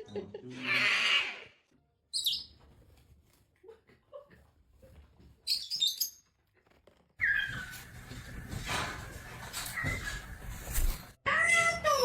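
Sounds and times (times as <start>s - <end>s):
parrot chirping: 2.1s - 2.6s, 7.2s - 8.0s.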